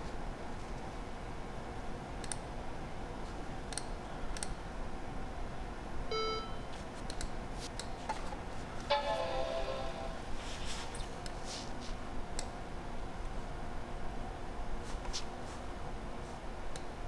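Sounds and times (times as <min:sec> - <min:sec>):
short computer beep: 0:06.1 - 0:06.6.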